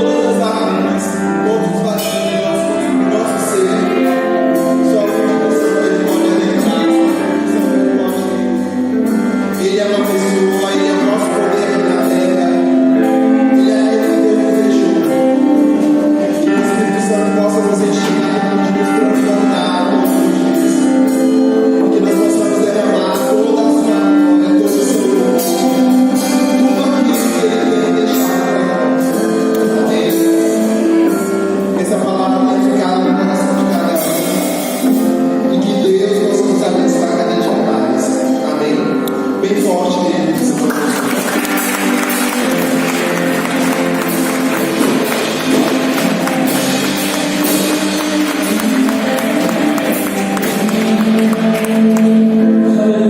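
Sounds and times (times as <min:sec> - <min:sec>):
person singing: 0:00.0 - 0:53.0
worship music: 0:00.0 - 0:53.0
steady percussive beat: 0:40.5 - 0:52.3.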